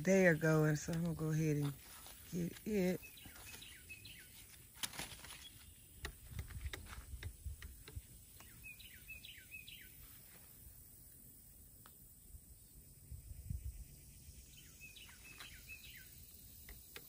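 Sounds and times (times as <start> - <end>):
small bird chirping: 0.0 - 11.0, 11.9 - 17.0
leaves and twigs rustling: 0.0 - 11.1, 14.6 - 16.4.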